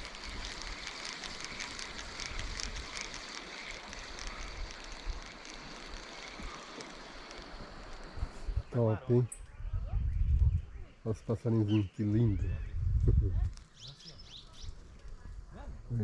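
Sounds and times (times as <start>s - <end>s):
rushing hiss: 0.0s - 8.7s.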